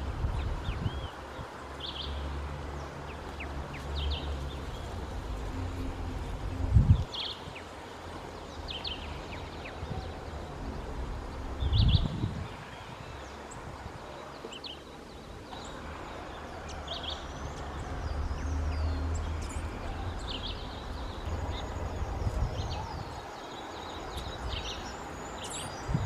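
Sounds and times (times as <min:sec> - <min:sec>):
steady low rumble: 0:02.4 - 0:07.1, 0:08.0 - 0:12.5, 0:15.5 - 0:23.2.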